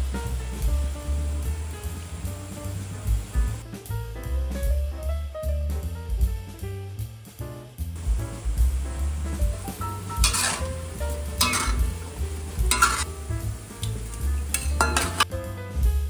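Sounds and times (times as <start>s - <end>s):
dumplings sizzling in hot oil: 0.0s - 3.7s, 7.8s - 15.9s
jazz music with bass line: 0.0s - 16.0s
utensil scraping a pan: 9.1s - 15.3s.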